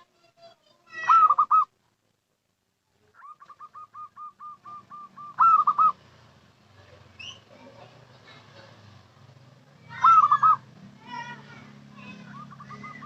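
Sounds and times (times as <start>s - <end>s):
dove cooing: 1.0s - 1.7s, 3.2s - 6.1s, 9.9s - 10.7s, 12.0s - 13.0s.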